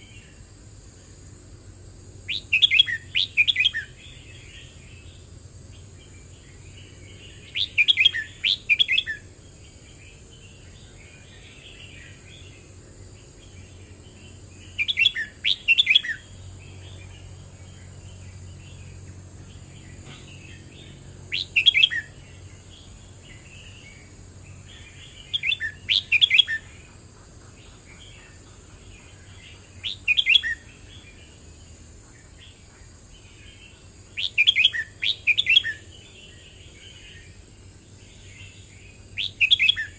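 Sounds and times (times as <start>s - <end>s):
bird song phrases: 0.0s - 1.3s, 2.1s - 39.9s
steady high hiss: 0.0s - 39.9s
bird twittering: 2.3s - 4.6s, 6.4s - 9.3s, 14.2s - 17.2s, 19.8s - 22.4s, 23.2s - 31.2s, 32.4s - 37.3s, 38.2s - 39.9s.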